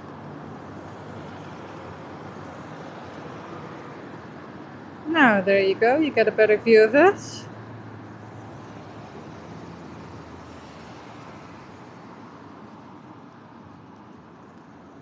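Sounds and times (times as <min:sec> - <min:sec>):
street traffic noise: 0:00.0 - 0:15.0
passing vehicle engine hum: 0:04.8 - 0:12.9.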